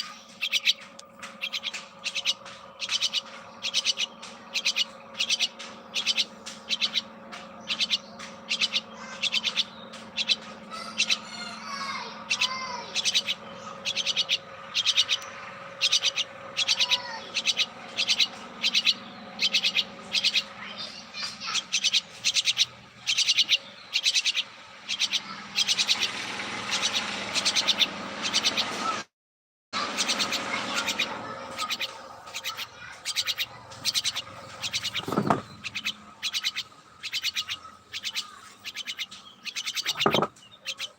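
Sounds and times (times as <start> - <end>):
steady low hum: 0.0 - 29.0
birds chirping: 0.0 - 29.1, 29.8 - 40.9.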